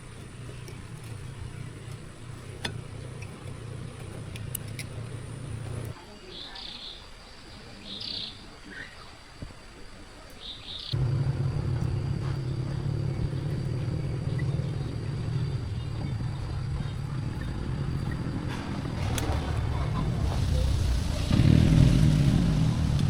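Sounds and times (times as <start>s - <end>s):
engine running: 0.0s - 6.0s, 11.0s - 23.0s.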